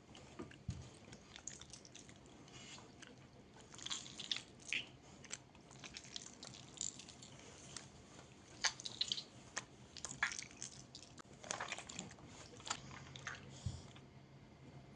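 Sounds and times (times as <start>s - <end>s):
slime squishing and popping: 8.6s - 12.0s.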